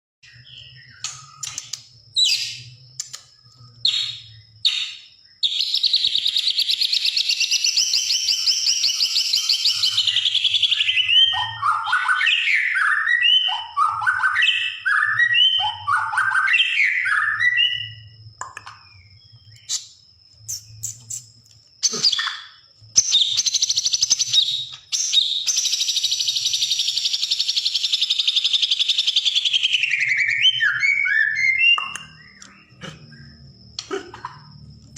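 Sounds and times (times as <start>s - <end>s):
bird singing trills and whistles: 0.2s - 34.5s.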